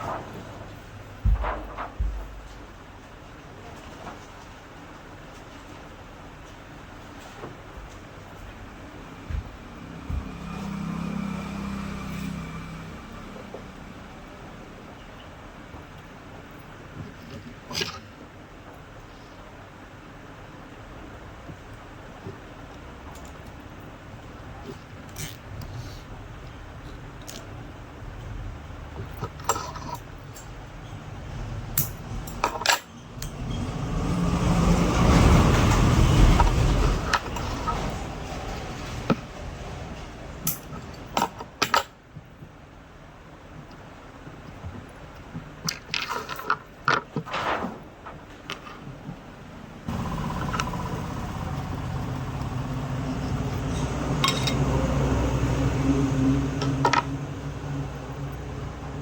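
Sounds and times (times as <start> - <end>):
ceiling fan motor humming: 47.9 - 59.0
low rumbling noise: 49.9 - 59.0.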